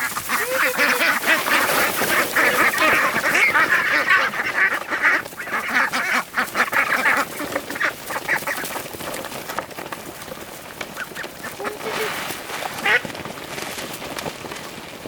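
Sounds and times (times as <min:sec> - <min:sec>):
ducks quacking: 0:00.0 - 0:09.0, 0:10.9 - 0:13.2.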